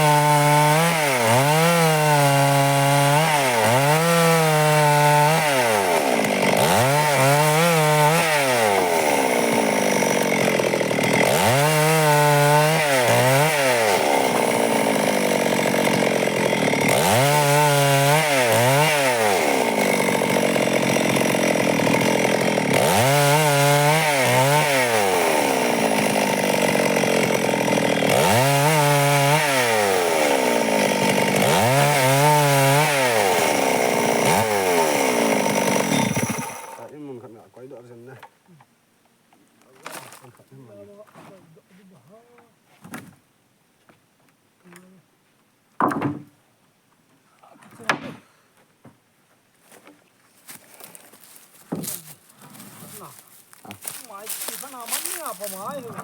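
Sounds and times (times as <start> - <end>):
chainsaw cutting timber: 0.0 - 37.0, 39.8 - 40.2, 50.4 - 56.0.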